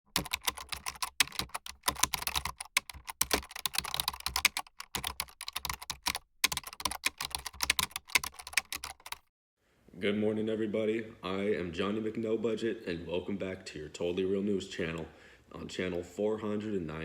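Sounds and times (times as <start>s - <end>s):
fast typing on keyboard: 0.1s - 9.3s.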